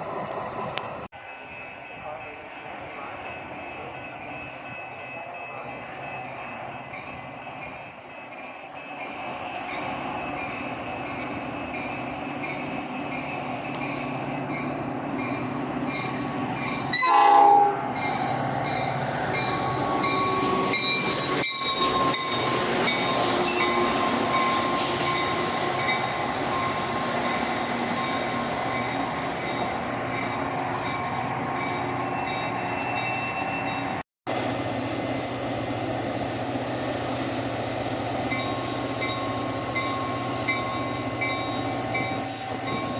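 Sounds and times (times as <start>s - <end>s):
train wheels rumbling: 0.0s - 42.9s
train horn blast: 16.9s - 18.0s.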